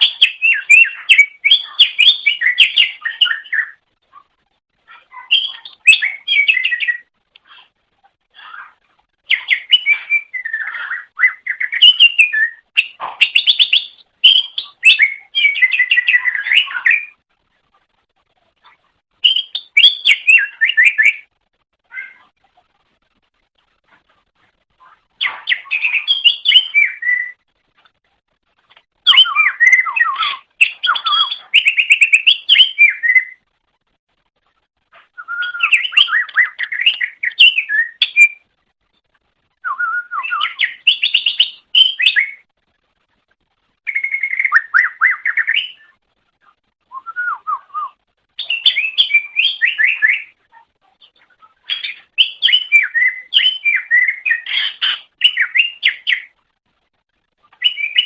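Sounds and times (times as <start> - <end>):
bird warbling and whistling: 0.0 - 3.8, 4.9 - 7.1, 9.3 - 17.2, 19.2 - 21.3, 25.2 - 27.4, 29.0 - 33.4, 35.1 - 38.4, 39.6 - 42.4, 43.9 - 45.9, 46.9 - 50.4, 51.5 - 56.3, 57.6 - 58.0.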